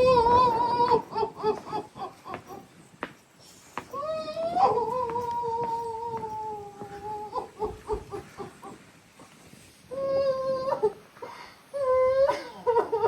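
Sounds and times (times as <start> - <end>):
person wailing: 0.0 - 1.8
sobbing gasps: 10.6 - 12.8.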